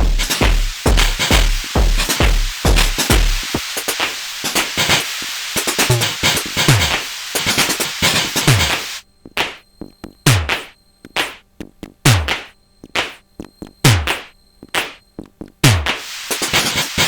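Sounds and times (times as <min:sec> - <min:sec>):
kick drums falling in pitch: 0:00.0 - 0:03.6, 0:09.3 - 0:11.4, 0:12.0 - 0:16.0
drum machine techno pattern: 0:00.0 - 0:17.0
hat and percussion hits: 0:00.0 - 0:17.0.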